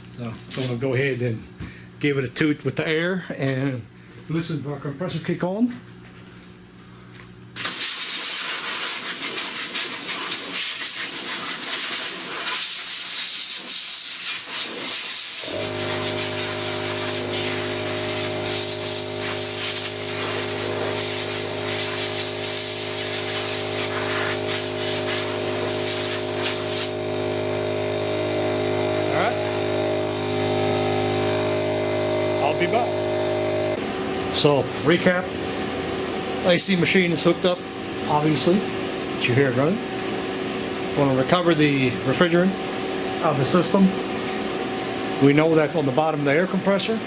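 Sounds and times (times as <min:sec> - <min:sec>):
air compressor humming: 0:06.0 - 0:46.4
compressed air hissing from nozzle: 0:07.6 - 0:27.0.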